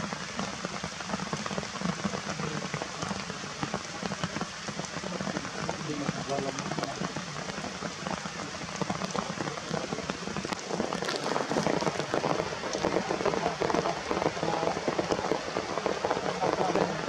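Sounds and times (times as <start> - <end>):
rain falling steadily: 0.0 - 17.0.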